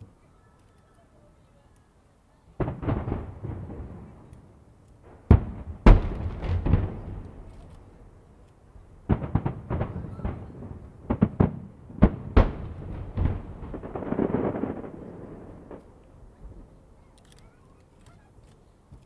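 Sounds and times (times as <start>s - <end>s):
firework shells bursting: 2.6s - 16.4s.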